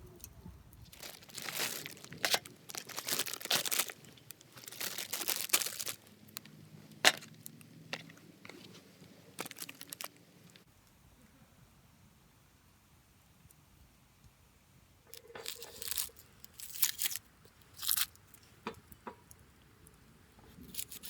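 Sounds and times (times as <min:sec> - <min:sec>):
crinkling and tearing: 0:00.8 - 0:06.5, 0:07.1 - 0:10.7, 0:15.1 - 0:18.2, 0:20.5 - 0:21.0.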